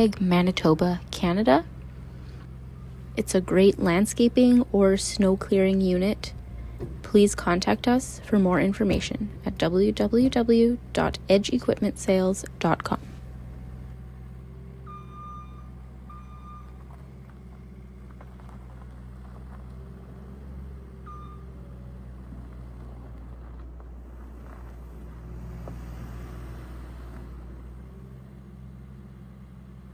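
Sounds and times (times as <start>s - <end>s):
diesel engine running: 0.0s - 29.9s
short high beeps: 14.9s - 16.7s.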